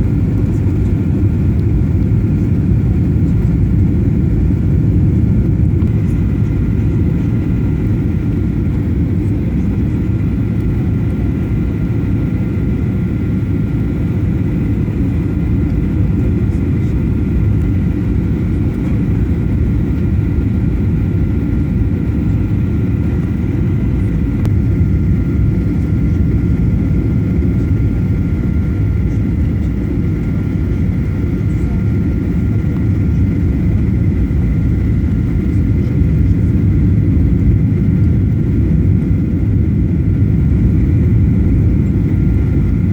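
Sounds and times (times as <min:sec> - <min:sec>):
faint steady whining tones: 0:00.0 - 0:42.9
jet engine and airflow rumble: 0:00.0 - 0:42.9.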